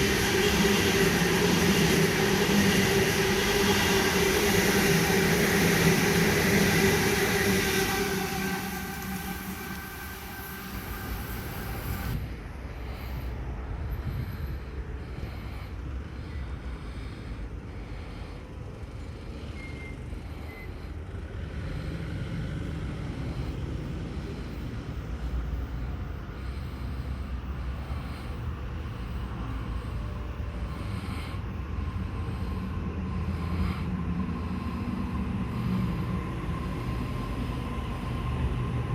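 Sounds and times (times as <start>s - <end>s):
high hiss: 0.0s - 12.3s
electric train rumbling on rails: 0.0s - 38.9s.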